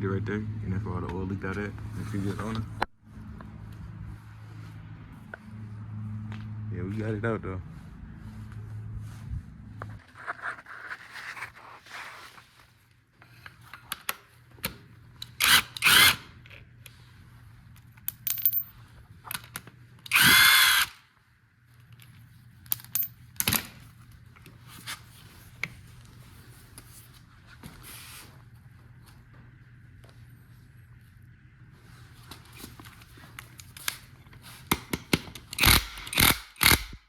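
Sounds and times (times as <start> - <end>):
handheld power tool whining: 15.4 - 16.2, 20.1 - 21.0, 35.5 - 37.0.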